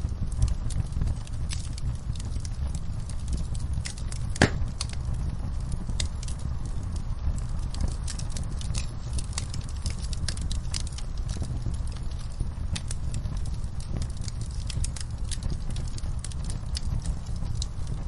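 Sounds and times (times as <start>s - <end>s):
wood fire crackling: 0.0s - 18.0s
loud wood snap: 4.4s - 4.9s.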